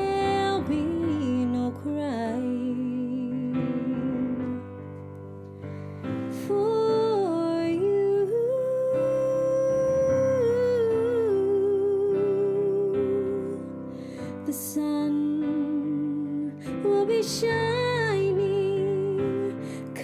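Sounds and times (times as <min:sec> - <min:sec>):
person singing a slow ballad: 0:00.0 - 0:05.1, 0:06.1 - 0:20.0
soft keyboard accompaniment: 0:00.0 - 0:13.8.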